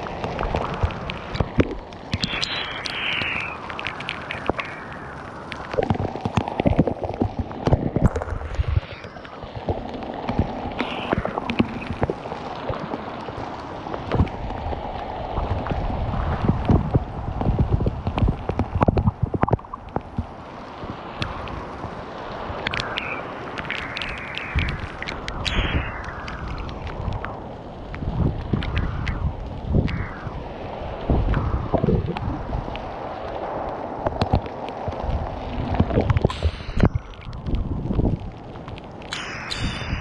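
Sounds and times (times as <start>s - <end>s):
rain downpour: 0.0s - 40.0s
wind buffeting microphone: 13.9s - 40.0s.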